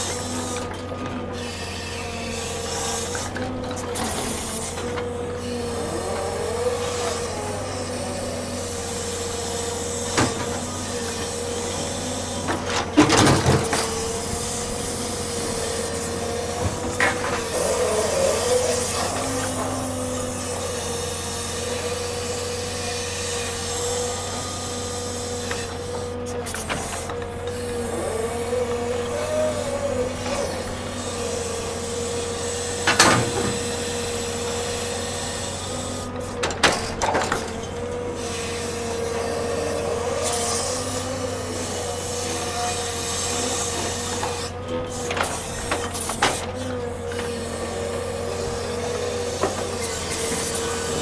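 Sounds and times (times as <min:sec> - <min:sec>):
machinery whining: 0:00.0 - 0:51.0.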